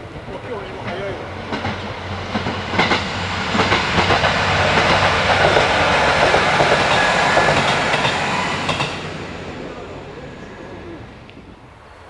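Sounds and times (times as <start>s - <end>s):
train wheels clattering over rail joints: 0.0s - 9.2s.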